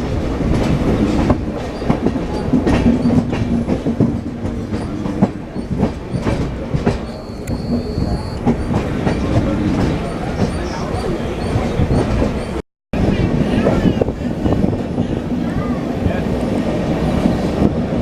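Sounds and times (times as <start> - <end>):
train rumbling on track: 0.0 - 18.0
wheel clacks and knocks: 0.5 - 12.6.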